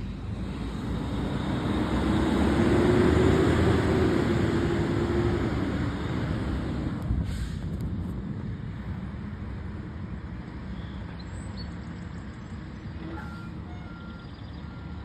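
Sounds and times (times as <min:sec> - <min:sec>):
fire truck driving past: 0:00.0 - 0:10.7.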